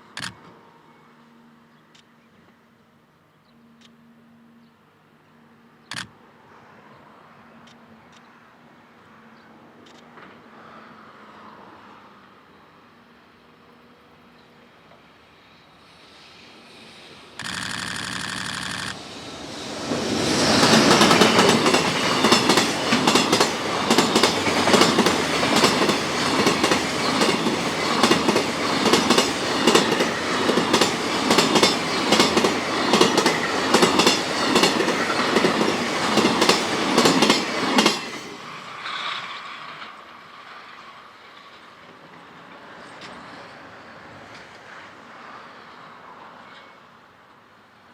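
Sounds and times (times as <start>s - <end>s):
freight train passing: 4.0s - 47.9s
wheels clicking over rail joints: 17.4s - 19.0s, 20.6s - 38.3s.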